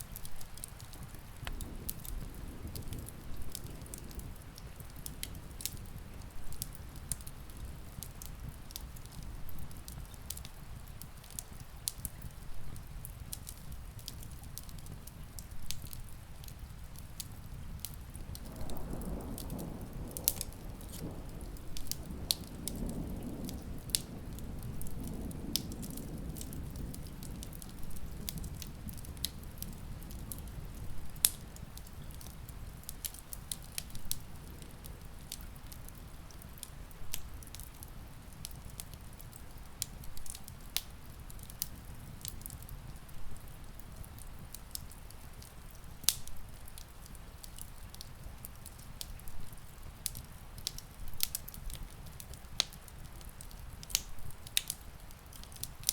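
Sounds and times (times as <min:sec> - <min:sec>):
rain hissing: 0:00.0 - 0:11.1, 0:17.6 - 0:32.7
wood fire crackling and popping: 0:00.0 - 0:55.9.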